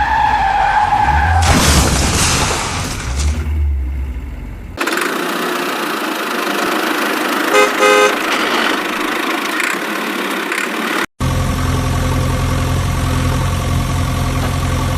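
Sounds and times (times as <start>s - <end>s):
vehicle engine running: 3.4s - 14.9s
horn toots: 7.5s - 8.5s.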